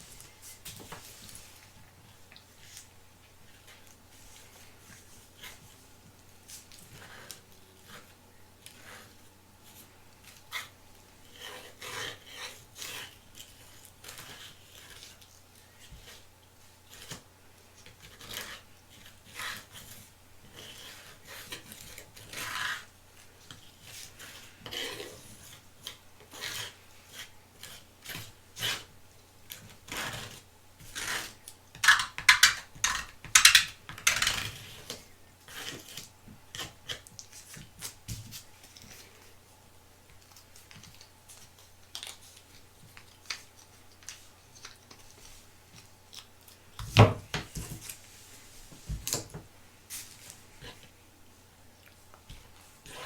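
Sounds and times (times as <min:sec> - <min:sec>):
plastic packaging rubbing and scraping: 0:29.6 - 0:39.2.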